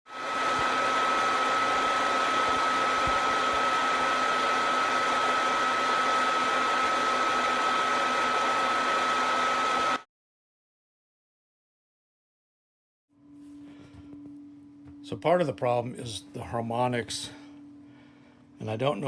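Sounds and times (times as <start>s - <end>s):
high whine: 0.1s - 10.0s, 13.2s - 19.0s
ventilation fans whirring: 0.1s - 10.0s, 13.2s - 19.0s
low hum: 13.2s - 19.0s.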